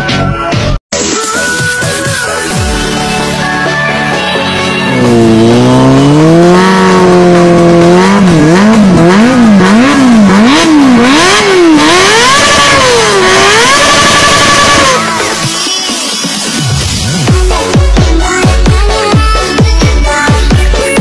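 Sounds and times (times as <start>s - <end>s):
motorcycle engine revving: 4.4s - 15.6s.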